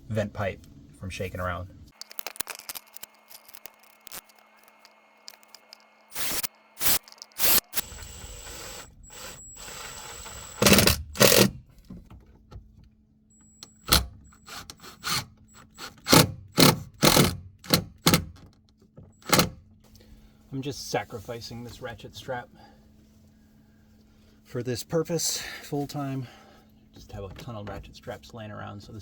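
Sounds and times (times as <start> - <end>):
cordless drill running: 3.0 - 11.6.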